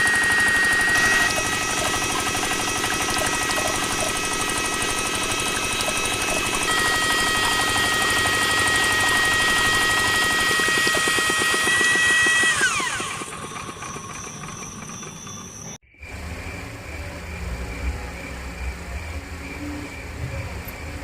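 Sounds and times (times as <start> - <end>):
small electric motor whining: 0.0 - 15.8.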